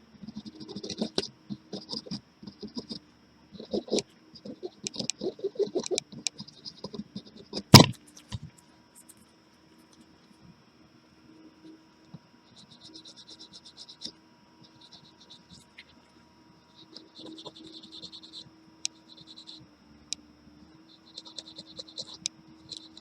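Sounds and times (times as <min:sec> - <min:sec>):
faint steady hum: 0:00.0 - 0:23.0
small tools rubbing and clicking: 0:00.2 - 0:03.0, 0:03.6 - 0:10.0, 0:16.8 - 0:19.6, 0:21.0 - 0:23.0.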